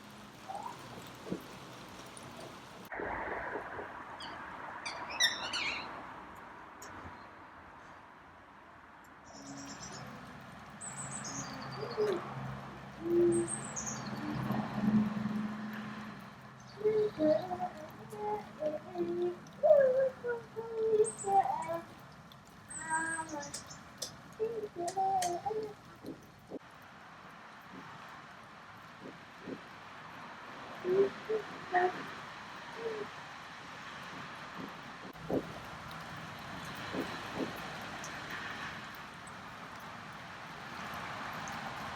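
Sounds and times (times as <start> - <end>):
faint outdoor background noise: 0.0 - 41.9
bird hooting: 0.5 - 0.8, 30.7 - 33.2
small bird chirps: 0.5 - 0.9, 4.2 - 6.0, 9.3 - 10.2, 10.8 - 12.2, 13.0 - 14.5, 22.7 - 26.6.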